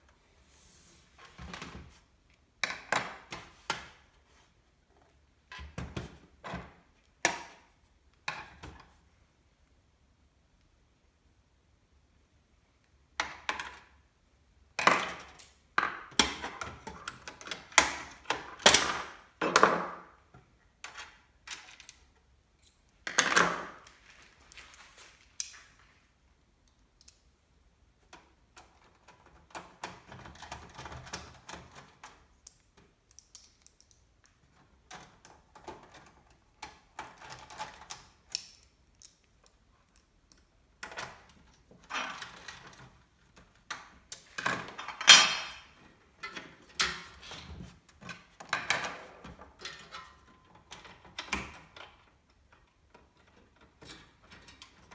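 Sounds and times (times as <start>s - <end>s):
soft rustling: 23.9s - 26.2s.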